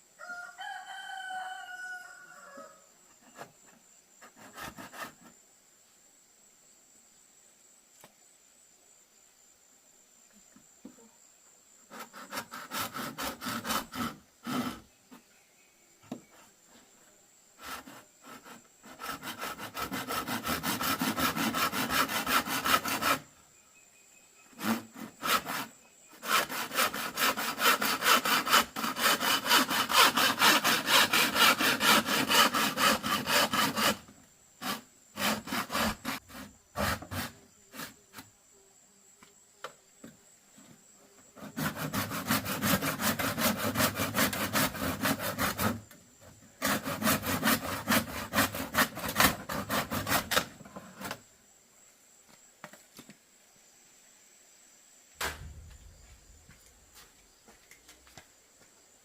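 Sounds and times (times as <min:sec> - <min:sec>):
hand saw cutting bamboo: 0:04.2 - 0:05.3, 0:11.9 - 0:14.9, 0:17.6 - 0:23.3, 0:24.5 - 0:38.3, 0:41.4 - 0:46.0, 0:46.6 - 0:51.2.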